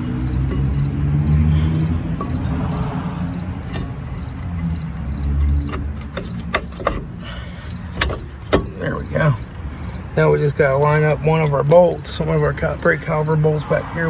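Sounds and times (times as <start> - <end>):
sharp metallic clicks: 0.0 - 10.2
cricket chirping: 0.0 - 14.0.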